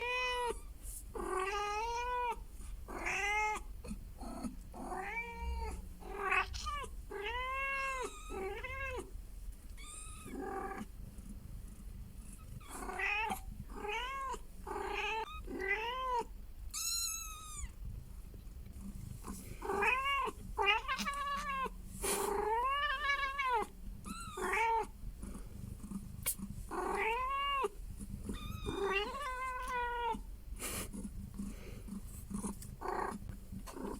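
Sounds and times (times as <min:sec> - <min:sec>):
cats meowing: 0:00.0 - 0:03.7, 0:04.8 - 0:09.1, 0:09.8 - 0:10.9, 0:12.5 - 0:17.8, 0:19.6 - 0:24.9, 0:26.2 - 0:30.3.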